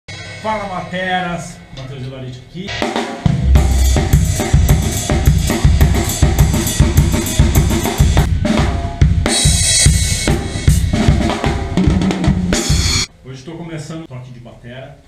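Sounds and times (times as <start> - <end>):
cymbal crash: 0.1 - 1.1, 2.7 - 13.1
bass drum: 2.7 - 13.1
snare drum: 2.7 - 13.1.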